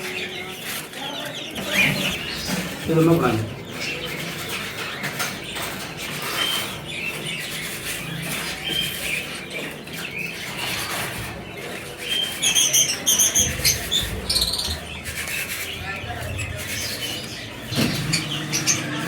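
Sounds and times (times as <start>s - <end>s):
small birds chattering: 0.0s - 19.0s.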